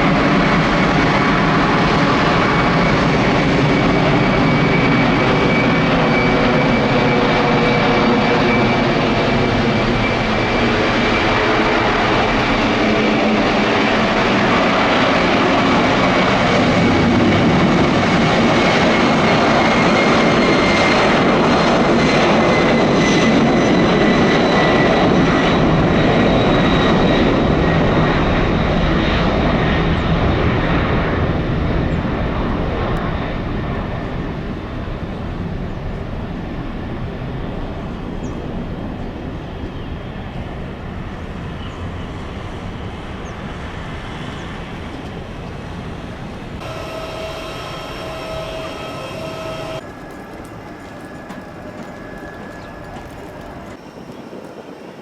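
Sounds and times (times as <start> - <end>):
jet engine whine passing: 0.0 - 55.0
steady multi-tone hum: 44.9 - 53.7.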